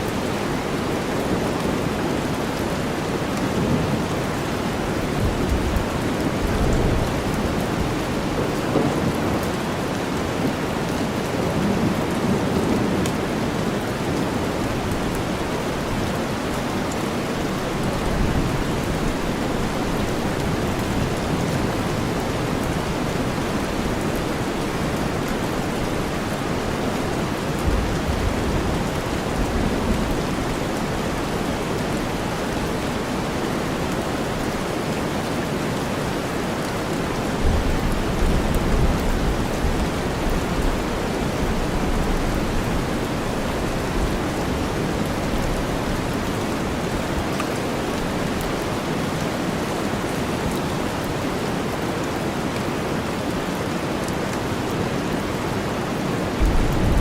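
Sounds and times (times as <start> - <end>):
steady rainfall: 0.0 - 57.0
distant thunder rumbling: 56.4 - 57.0.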